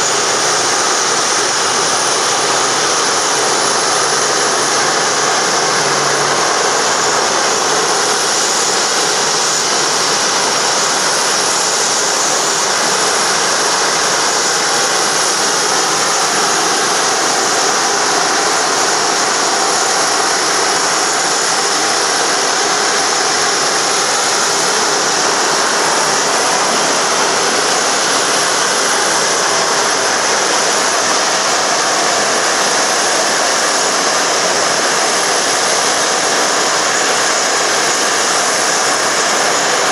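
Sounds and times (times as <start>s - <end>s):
jet engine running: 0.0s - 39.9s.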